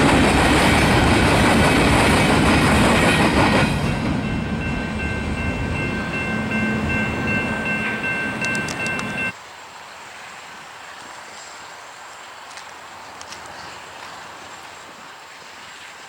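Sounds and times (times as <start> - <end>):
freight train rumbling: 0.0 - 9.4
locomotive horn chord: 3.2 - 9.3
faint outdoor background: 3.6 - 14.1.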